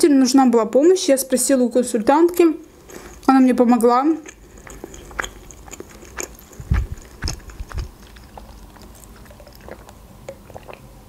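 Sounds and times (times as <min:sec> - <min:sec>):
chewing with wet mouth clicks: 0:02.8 - 0:03.3, 0:04.2 - 0:10.9.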